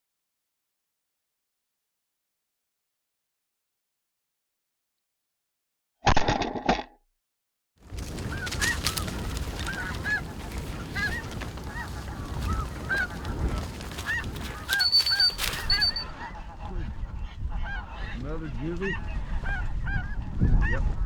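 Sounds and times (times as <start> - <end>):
wind rumbling on microphone: 7.8 - 21.0
geese calling: 8.0 - 16.6.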